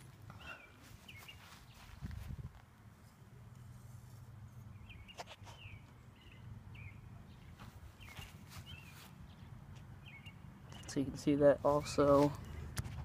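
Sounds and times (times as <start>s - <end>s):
small bird chirping: 0.5s - 1.9s, 4.6s - 11.0s.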